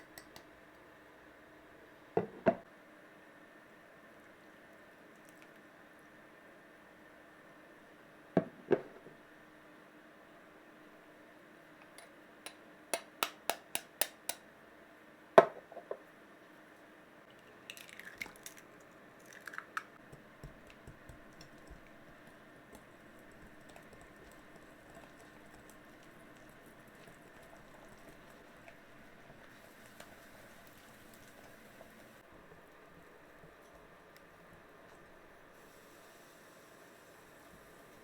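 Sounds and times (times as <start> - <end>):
utensil tapping bowl: 0.0 - 0.5, 11.8 - 14.4, 20.0 - 28.8
faint steady hum: 0.0 - 38.0
stirring batter in bowl: 20.0 - 31.6.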